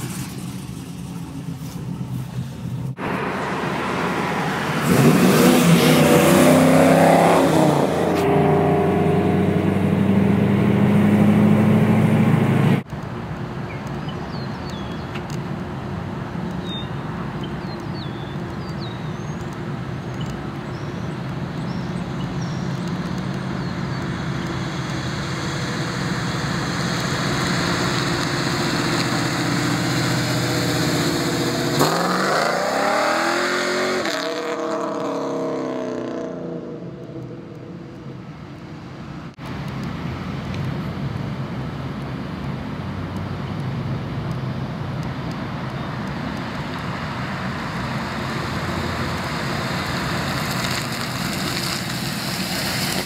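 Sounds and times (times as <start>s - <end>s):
car engine rumbling and revving: 0.0s - 53.0s.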